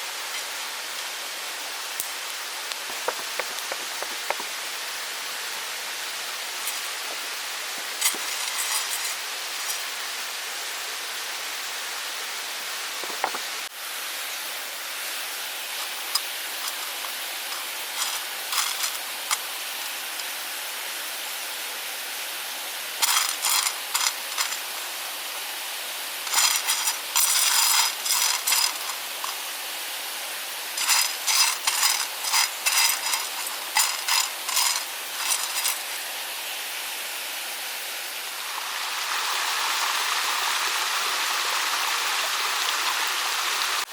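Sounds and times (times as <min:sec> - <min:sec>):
stream rushing: 0:00.0 - 0:43.9
rapid metallic rattling: 0:16.1 - 0:19.4, 0:23.0 - 0:24.7, 0:26.2 - 0:29.4, 0:30.8 - 0:35.9.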